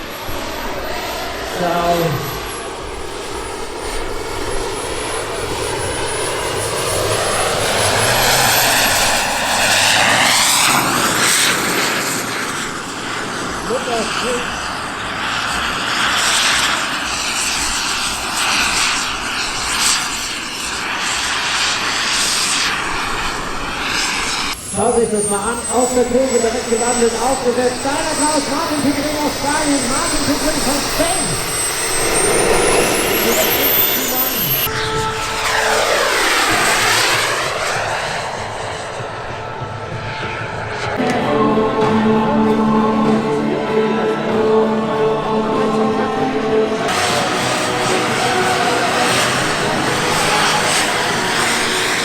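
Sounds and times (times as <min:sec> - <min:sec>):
model airplane engine: 0:00.0 - 0:52.0
music: 0:41.0 - 0:50.7.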